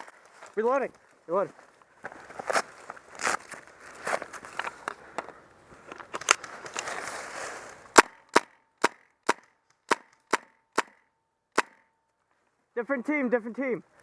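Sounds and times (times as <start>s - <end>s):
footsteps: 0.0s - 8.0s
rustling: 0.0s - 8.0s
airsoft rifle shots: 8.0s - 12.0s.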